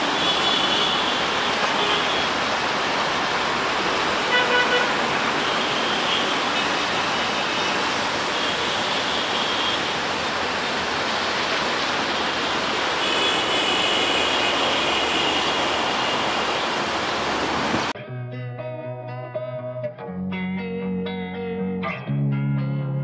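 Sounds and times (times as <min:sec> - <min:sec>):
electric guitar music: 0:18.0 - 0:23.0.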